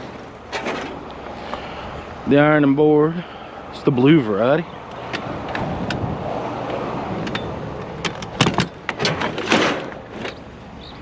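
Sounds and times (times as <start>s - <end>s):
scrap knocks and rattles: 7.2s - 10.4s.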